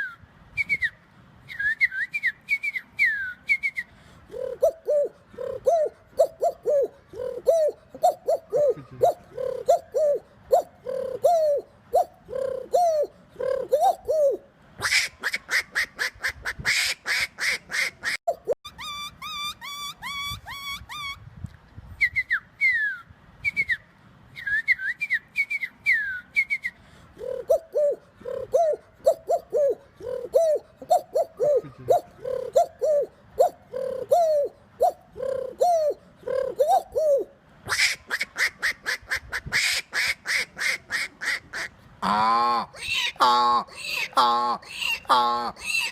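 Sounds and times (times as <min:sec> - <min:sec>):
man imitating bird calls: 0:04.3 - 0:21.2, 0:27.2 - 0:45.9.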